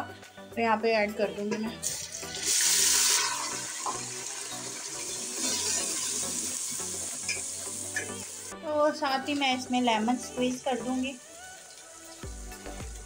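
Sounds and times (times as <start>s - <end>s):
puree sizzling in hot oil: 1.8s - 8.6s, 9.2s - 12.8s.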